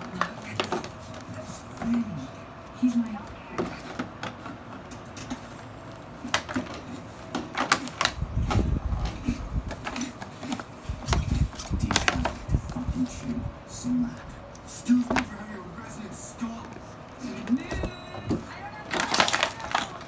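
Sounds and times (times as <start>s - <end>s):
puppy paws thumping: 6.2s - 15.6s
puppy claws clicking on floor: 18.3s - 20.0s.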